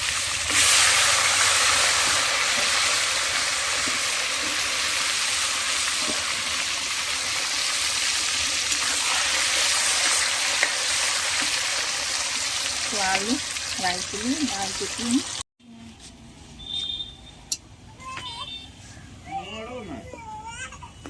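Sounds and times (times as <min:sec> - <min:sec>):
potatoes sizzling in hot oil: 0:00.0 - 0:15.4.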